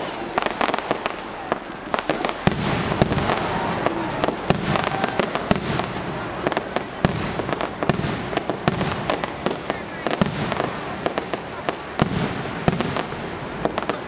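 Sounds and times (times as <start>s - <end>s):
fireworks popping and cracking: 0.0s - 14.0s
rushing crackle of bursts: 0.0s - 14.0s.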